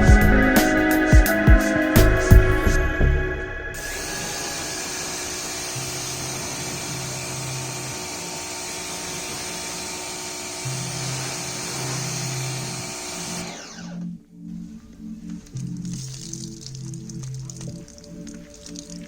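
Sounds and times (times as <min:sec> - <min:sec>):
machine polisher whining: 0:00.0 - 0:14.2.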